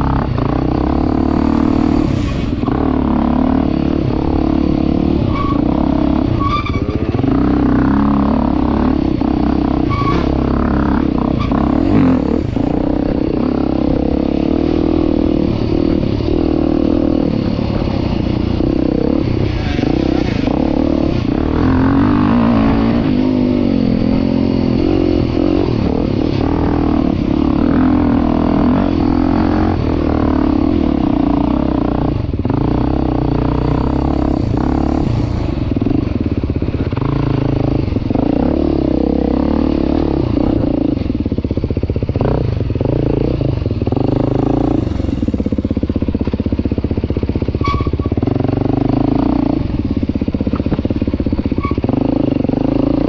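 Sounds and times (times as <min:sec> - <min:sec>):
dirt bike engine revving: 0:00.0 - 0:41.3, 0:42.0 - 0:53.0.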